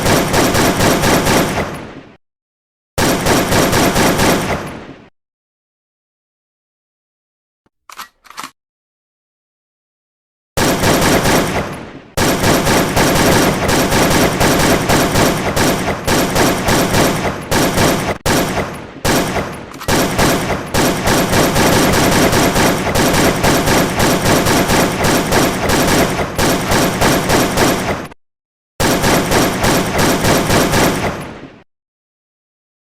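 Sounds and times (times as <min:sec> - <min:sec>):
automatic gunfire: 0:00.0 - 0:01.8, 0:03.0 - 0:04.7, 0:10.6 - 0:28.2, 0:28.8 - 0:31.4.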